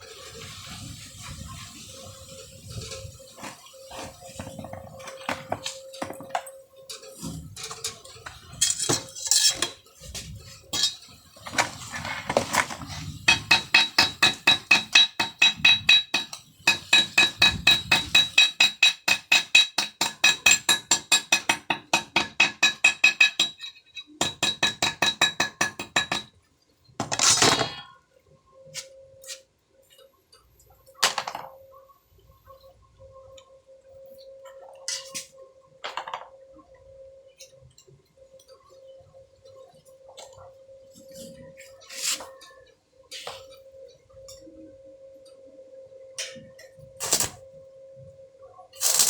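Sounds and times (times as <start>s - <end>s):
hammer striking steel: 13.3s - 26.3s.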